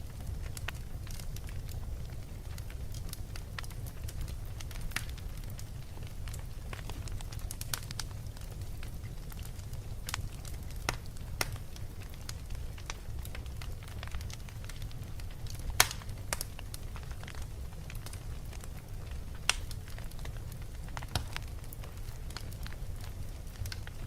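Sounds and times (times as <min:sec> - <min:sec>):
fire crackles and pops: 0:00.0 - 0:24.0
fire rumbling in fireplace: 0:00.0 - 0:24.0.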